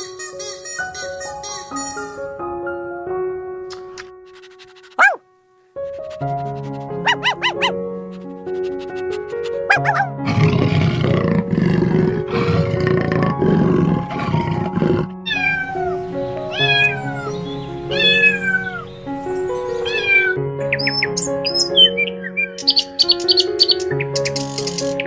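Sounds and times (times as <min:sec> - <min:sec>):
background music: 0:00.1 - 0:25.0
high falling calls: 0:07.0 - 0:07.8
big cat growling: 0:09.6 - 0:15.2.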